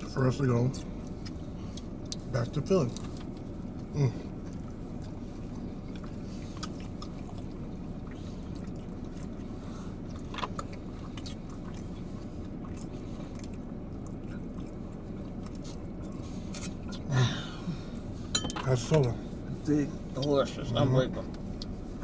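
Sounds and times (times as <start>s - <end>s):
low hum inside a car: 0.0s - 22.0s
mouth clicks and smacks chewing: 0.8s - 2.3s, 2.9s - 17.1s.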